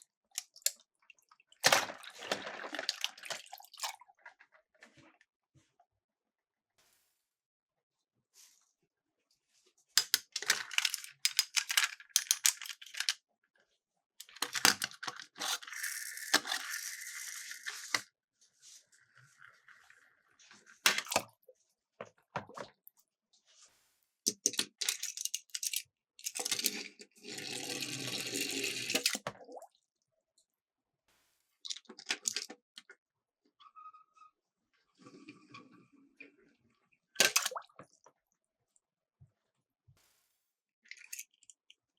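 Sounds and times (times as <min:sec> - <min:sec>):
toy cars rattling down a slope: 0:14.3 - 0:18.1.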